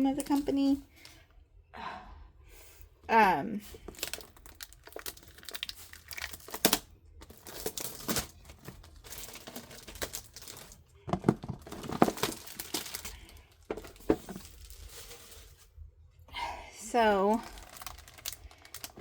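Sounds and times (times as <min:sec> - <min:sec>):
plastic packaging crinkling: 0:03.6 - 0:15.8, 0:17.1 - 0:19.0.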